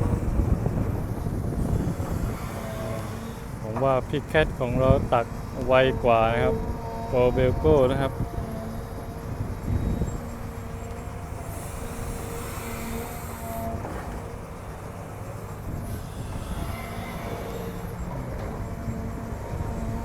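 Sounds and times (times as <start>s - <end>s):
hydraulic hiss: 0.0s - 5.6s, 9.6s - 20.0s
excavator diesel engine droning: 0.0s - 20.0s.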